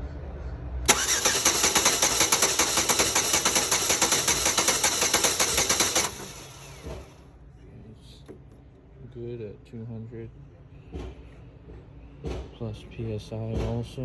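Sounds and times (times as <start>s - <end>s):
car starter cranking engine: 0.9s - 7.2s.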